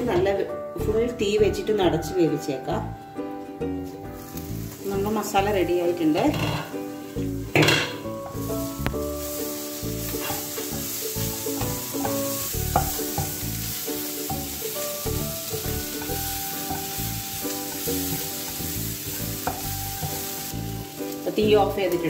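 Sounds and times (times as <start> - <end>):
food sizzling in a frying pan: 3.8 - 22.0
spatula scraping a pan: 10.0 - 14.5.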